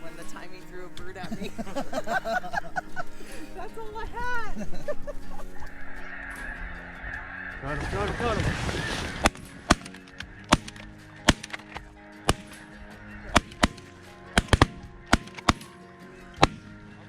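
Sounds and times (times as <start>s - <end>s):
background music: 0.0s - 17.0s
shotgun blasts: 8.2s - 12.7s, 14.4s - 15.8s.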